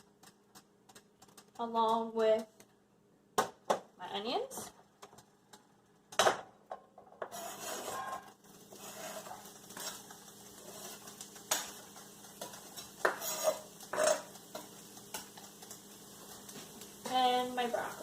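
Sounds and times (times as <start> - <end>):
utensil clinking and scraping pan: 7.2 - 15.4
onions sizzling in oil: 7.3 - 18.0.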